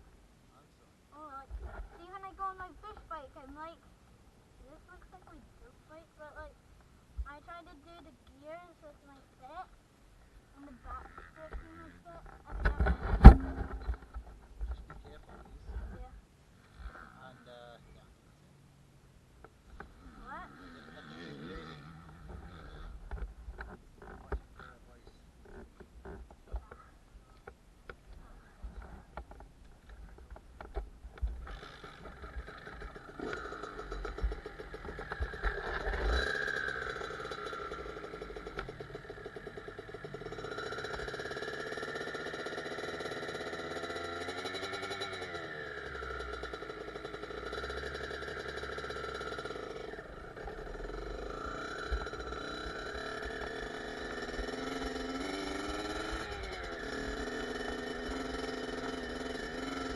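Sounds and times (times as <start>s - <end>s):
two-stroke engine revving: 10.9s - 14.2s, 19.8s - 24.8s, 30.6s - 59.9s
scattered clicks and knocks: 28.8s - 40.2s.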